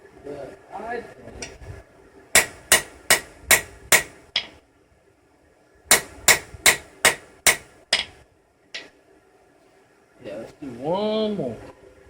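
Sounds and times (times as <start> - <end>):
hammer striking steel: 2.4 - 4.6, 5.9 - 8.2.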